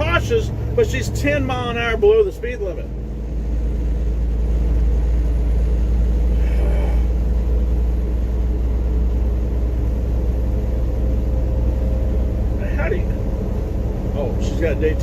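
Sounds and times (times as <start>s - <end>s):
tyres on wet road: 0.0s - 15.0s
vehicle engine and road drone: 0.0s - 15.0s.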